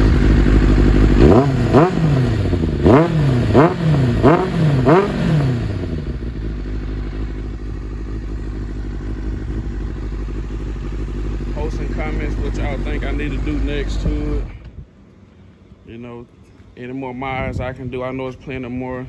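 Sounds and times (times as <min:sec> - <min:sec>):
motorcycle engine revving: 0:00.0 - 0:14.6
motorcycle engine idling: 0:00.0 - 0:14.7.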